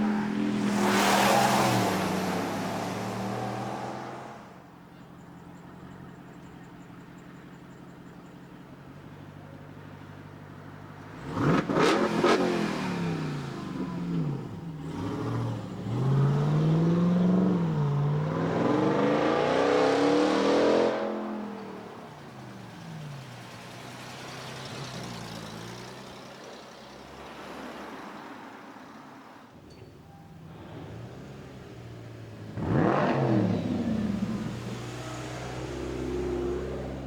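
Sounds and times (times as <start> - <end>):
car engine revving and accelerating: 0.0 - 4.6, 11.1 - 26.0, 30.5 - 37.0.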